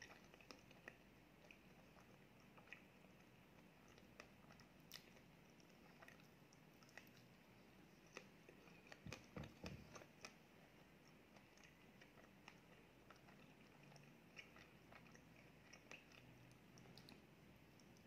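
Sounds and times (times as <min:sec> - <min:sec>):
mouth chewing crepe: 0:00.0 - 0:18.0.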